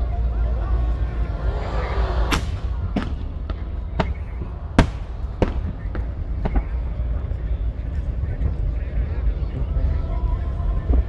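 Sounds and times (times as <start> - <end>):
faint crowd voices: 0.0 - 11.0
low rumble: 0.0 - 11.0
fireworks bangs: 0.1 - 8.8.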